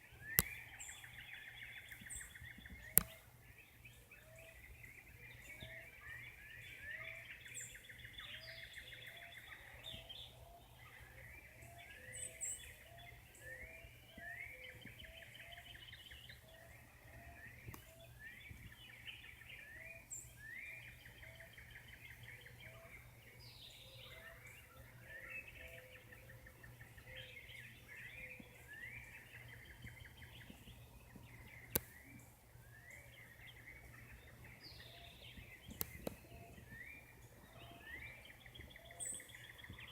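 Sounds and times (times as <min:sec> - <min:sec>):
birds chirping in chorus: 0:00.0 - 0:39.9
sharp click: 0:00.4 - 0:00.6, 0:02.9 - 0:03.2, 0:35.7 - 0:36.2.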